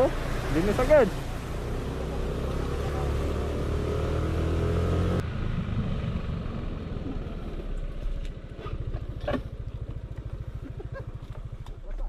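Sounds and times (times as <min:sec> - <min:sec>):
motorcycle engine idling: 0:05.2 - 0:12.0.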